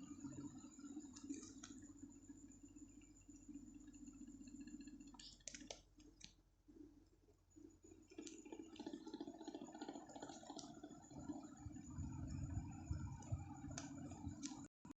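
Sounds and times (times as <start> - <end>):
ceiling fan humming: 0.0 - 14.7
deep rumble: 11.6 - 14.4.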